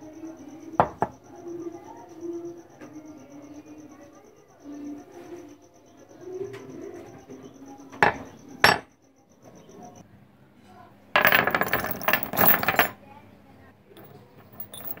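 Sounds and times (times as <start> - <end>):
chain clattering onto bench: 11.2 - 13.0, 14.0 - 15.0.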